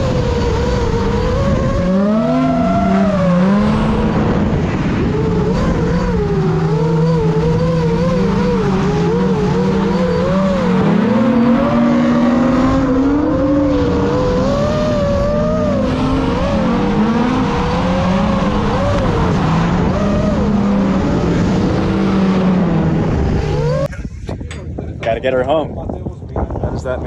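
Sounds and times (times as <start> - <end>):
car engine revving: 0.0 - 23.9
tyre and road noise: 0.0 - 24.4.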